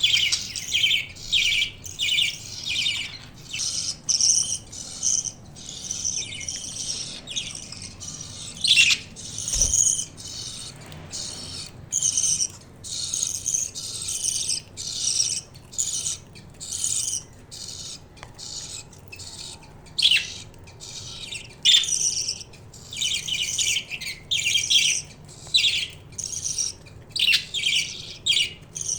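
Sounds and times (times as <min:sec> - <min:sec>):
budgies chirping and chattering: 0:00.0 - 0:28.9.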